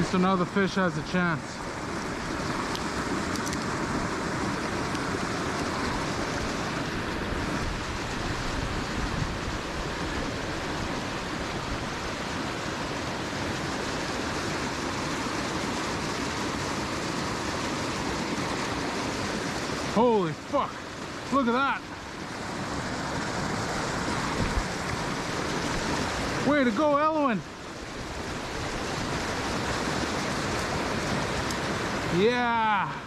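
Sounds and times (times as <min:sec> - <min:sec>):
creek water rushing: 0:00.0 - 0:33.0
wind noise on microphone: 0:05.6 - 0:12.2, 0:22.4 - 0:26.3.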